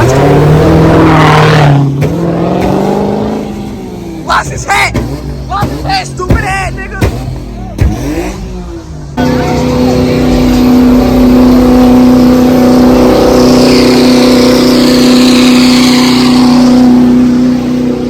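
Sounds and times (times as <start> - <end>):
car engine revving: 0.0 - 18.0
tyre squeal: 13.3 - 17.0.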